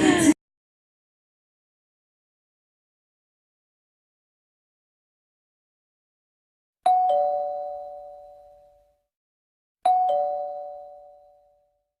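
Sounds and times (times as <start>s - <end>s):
two-tone ding-dong chime: 6.9s - 8.9s, 9.9s - 11.8s.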